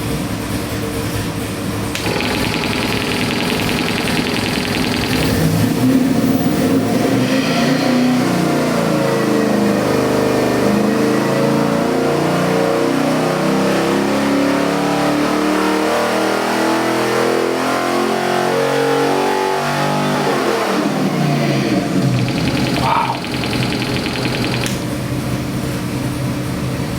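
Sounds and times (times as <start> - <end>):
engine revving on dyno: 2.0 - 21.2.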